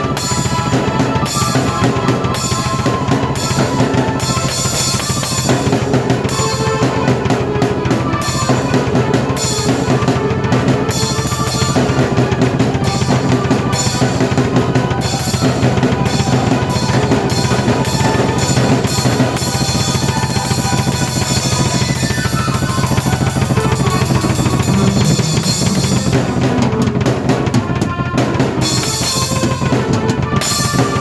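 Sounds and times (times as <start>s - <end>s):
drum kit bass and snare: 0.0s - 31.0s
sustained keyboard chords: 19.9s - 28.8s.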